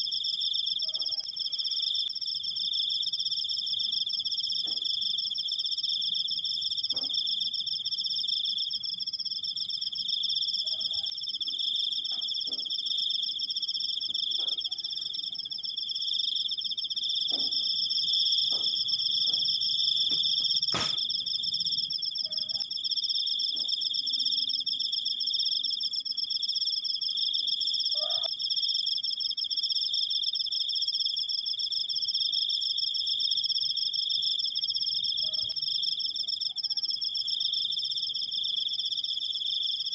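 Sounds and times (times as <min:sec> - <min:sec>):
crickets trilling: 0:00.0 - 0:39.9
sharp click: 0:20.7 - 0:21.0.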